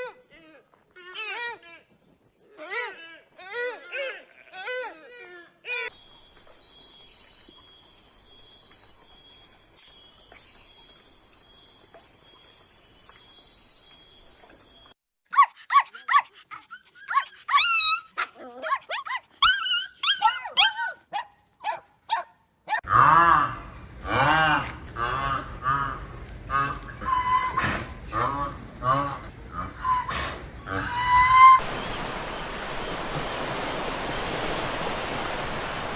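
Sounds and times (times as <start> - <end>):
puppy yelping and barking: 17.0 - 22.8.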